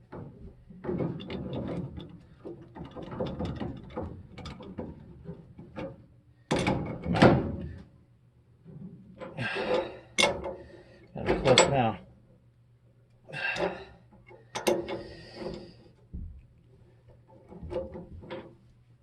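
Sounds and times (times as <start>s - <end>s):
wrench clicking and scraping on pipe: 13.5s - 15.8s.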